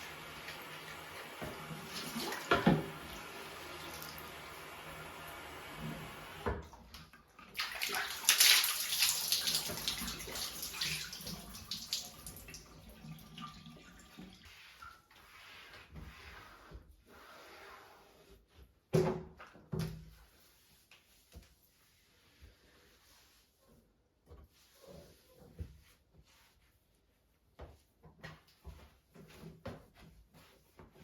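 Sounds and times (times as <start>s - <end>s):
water splashing in a bathtub: 0.0s - 18.6s.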